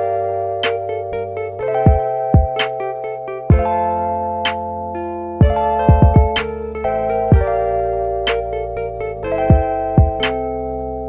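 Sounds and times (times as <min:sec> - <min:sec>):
electric piano chords: 0:00.0 - 0:11.0
steady drum beat: 0:01.4 - 0:03.7, 0:05.4 - 0:07.5, 0:09.0 - 0:10.3.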